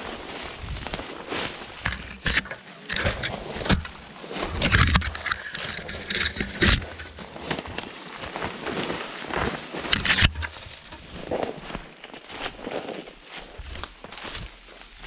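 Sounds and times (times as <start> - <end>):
wind rumbling on microphone: 0.0 - 2.3
brush rustling and crunching: 0.0 - 15.0
footsteps through undergrowth: 0.0 - 15.0.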